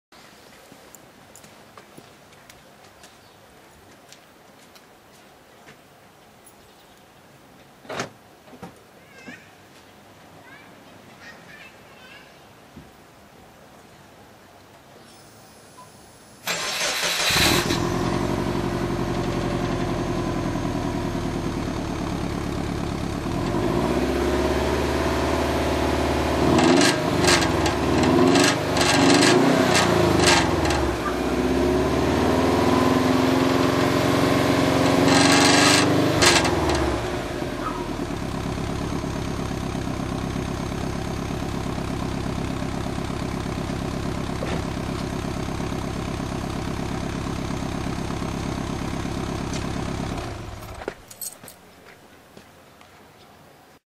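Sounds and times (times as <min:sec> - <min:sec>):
car engine idling and revving: 0:16.5 - 0:51.1.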